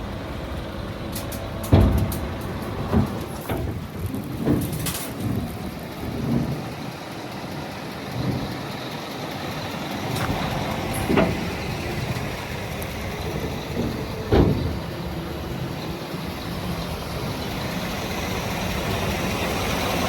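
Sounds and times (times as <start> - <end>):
truck engine running: 0.0 - 20.0
knocks and clunks: 1.1 - 6.7, 10.1 - 15.7.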